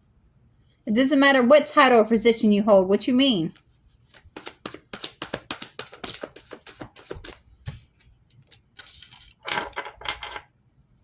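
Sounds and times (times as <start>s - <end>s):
cards being shuffled: 3.5s - 10.4s.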